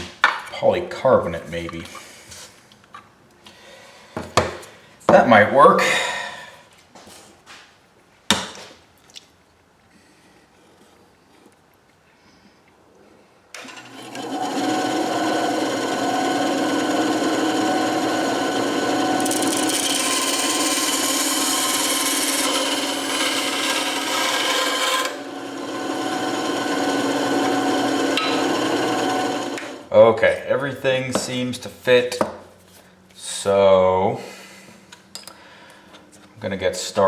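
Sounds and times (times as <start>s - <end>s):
power tool running: 13.6s - 29.9s.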